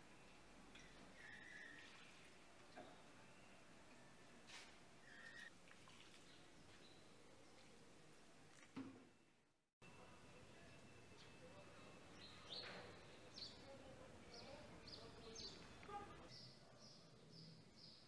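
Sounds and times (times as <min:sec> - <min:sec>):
faint outdoor ambience: 0:00.0 - 0:18.0
small bird chirping: 0:05.0 - 0:05.5.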